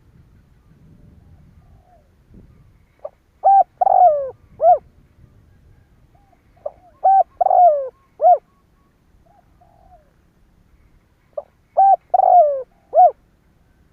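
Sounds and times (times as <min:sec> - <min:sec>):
dove cooing: 0:01.1 - 0:02.2, 0:03.0 - 0:04.9, 0:06.1 - 0:08.6, 0:09.2 - 0:10.2, 0:11.4 - 0:13.2.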